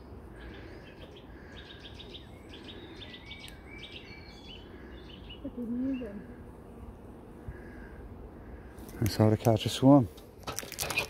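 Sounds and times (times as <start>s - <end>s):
songbird singing: 0.0s - 9.6s.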